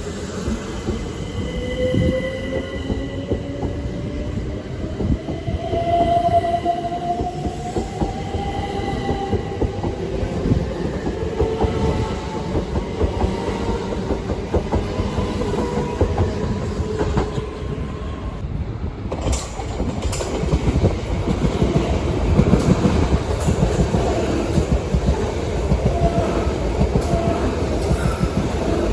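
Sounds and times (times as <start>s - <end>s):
train wheels rumbling: 0.0s - 28.9s
train whine: 0.0s - 28.9s
wheels clicking over rail joints: 19.1s - 28.9s.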